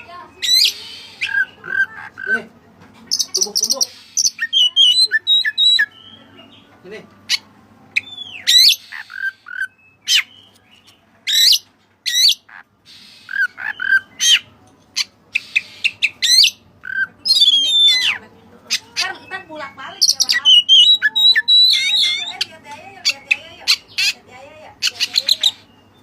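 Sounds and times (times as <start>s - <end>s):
bird singing whistled notes: 3.2s - 6.4s, 8.0s - 11.6s, 15.4s - 18.1s, 19.2s - 22.5s.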